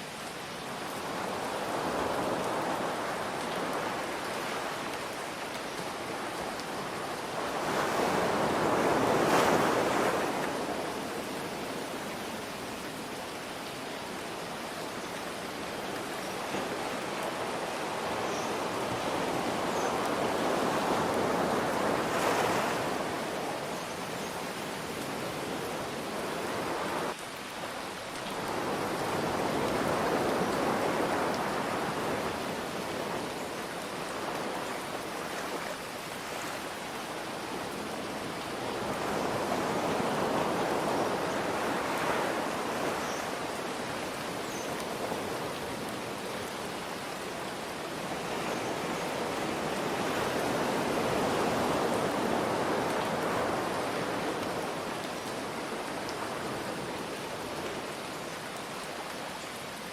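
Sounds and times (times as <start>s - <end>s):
ocean waves washing in: 0.7s - 13.9s, 14.6s - 27.2s.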